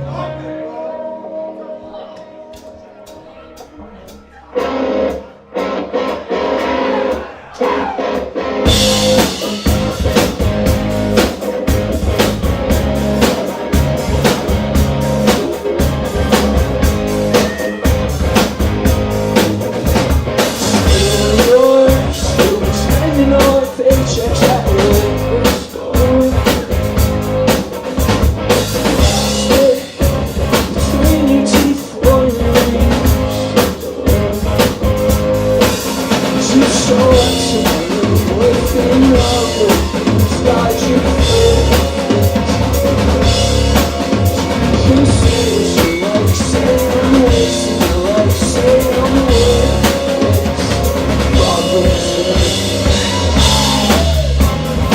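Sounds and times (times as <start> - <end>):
live rock band playing: 0.0 - 54.9.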